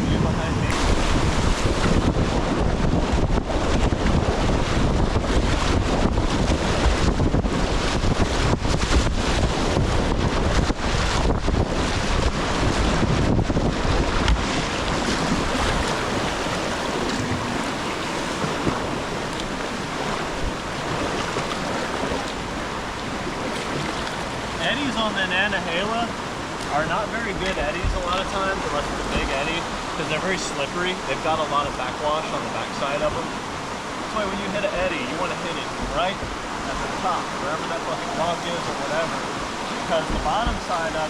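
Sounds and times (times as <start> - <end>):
wind buffeting microphone: 0.0 - 31.1
water splashes: 0.6 - 41.0
rushing whitewater: 13.6 - 41.0.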